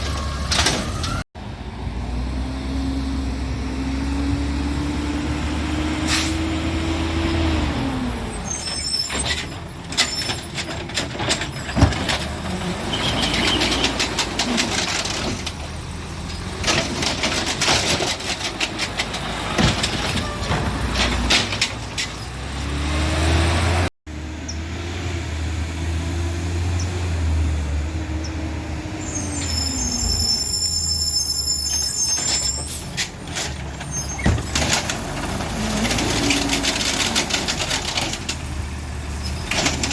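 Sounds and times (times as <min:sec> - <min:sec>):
diesel engine revving: 0:00.0 - 0:39.9
air brakes hissing: 0:06.0 - 0:06.5
clattering and knocks: 0:09.9 - 0:22.3, 0:33.0 - 0:38.5, 0:39.3 - 0:39.9.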